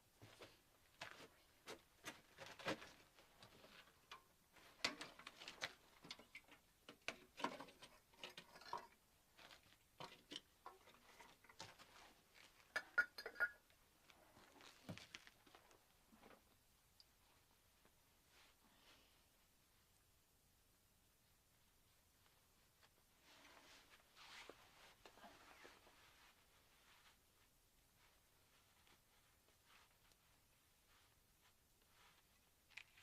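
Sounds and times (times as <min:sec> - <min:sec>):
objects being handled: 0:00.2 - 0:16.6.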